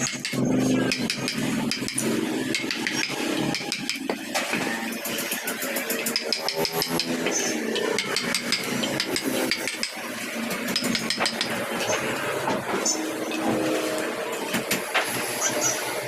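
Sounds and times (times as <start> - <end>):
carving tools knocking on wood: 0.0 - 4.6, 6.0 - 11.6
steady motor-like hum: 0.0 - 16.0.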